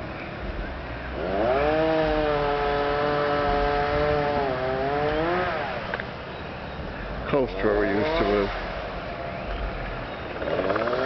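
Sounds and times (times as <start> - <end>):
chainsaw revving: 1.2 - 5.9, 8.0 - 8.5, 10.4 - 11.0.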